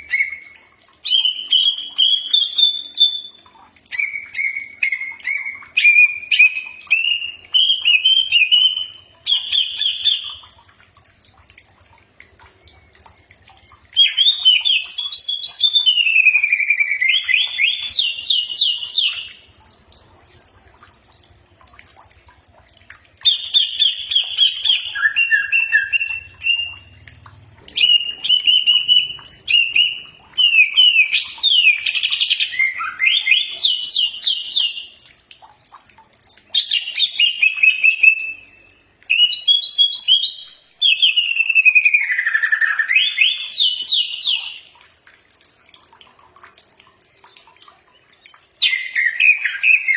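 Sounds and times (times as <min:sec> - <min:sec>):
bird singing whistles and trills: 0:00.0 - 0:10.5, 0:12.7 - 0:19.4, 0:23.2 - 0:27.0, 0:27.7 - 0:35.0, 0:36.5 - 0:44.6, 0:48.0 - 0:49.9.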